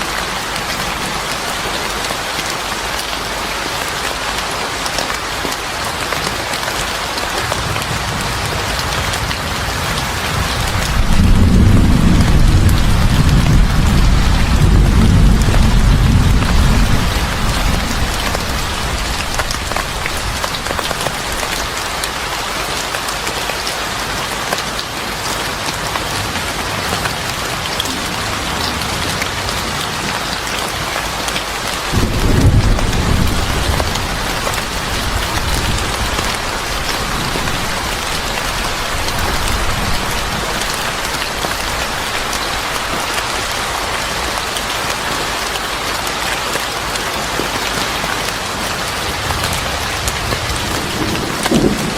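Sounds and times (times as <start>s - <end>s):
rain falling: 0.0s - 51.9s
thunder rumbling: 7.5s - 21.8s, 31.8s - 43.8s, 49.1s - 51.9s.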